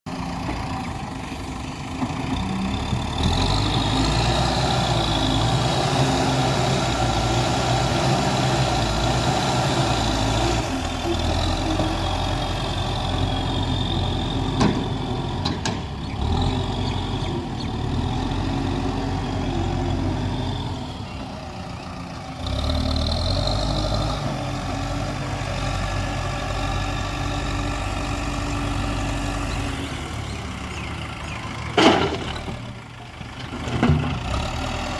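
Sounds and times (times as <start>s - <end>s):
diesel engine revving under load: 0.1s - 34.9s.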